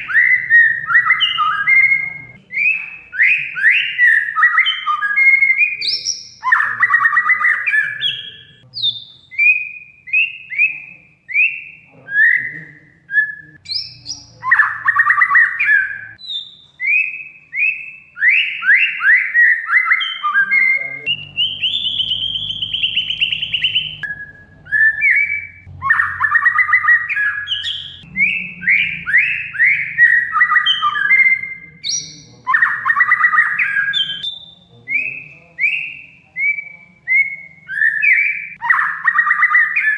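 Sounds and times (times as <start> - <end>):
bird whistling song: 0.0 - 39.9
bird buzzy chattering: 20.4 - 34.6.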